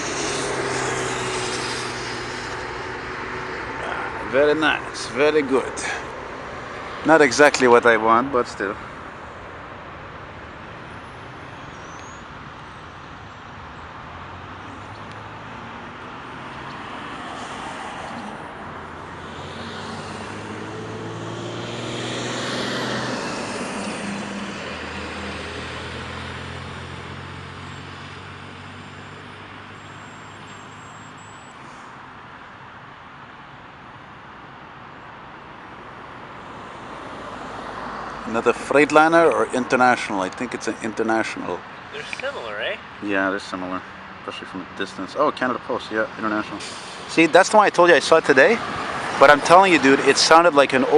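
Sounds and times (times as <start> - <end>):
vehicle passing close by: 0.0 - 9.1, 14.0 - 30.8, 36.2 - 50.9
road traffic: 0.0 - 50.9.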